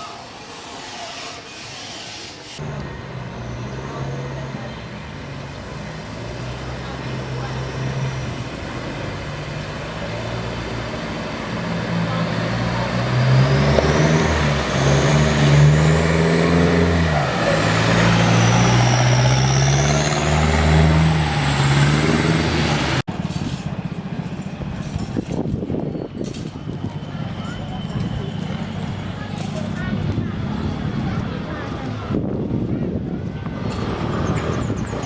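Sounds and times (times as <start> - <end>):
boat engine revving: 2.6 - 23.1, 33.4 - 35.0.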